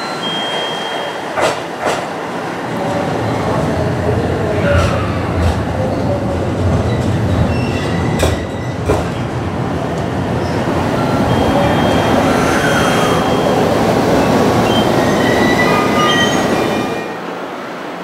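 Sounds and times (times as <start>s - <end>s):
train wheels rumbling on rail: 1.2s - 18.0s
sharp clacks over rail joint: 1.4s - 2.1s, 8.2s - 9.2s
high-pitched wheel squeals: 11.0s - 13.6s.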